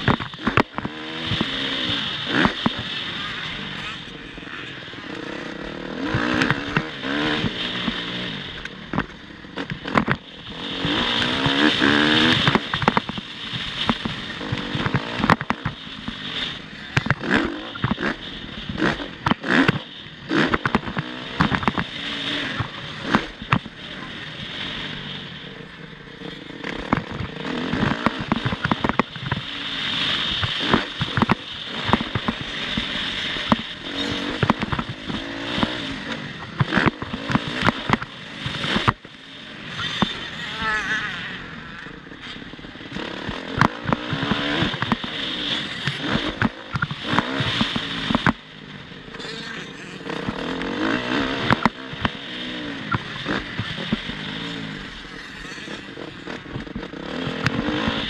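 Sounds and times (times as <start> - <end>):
engine knocks and crackles: 0.0 - 58.0
motocross bike engine revving: 0.0 - 58.0.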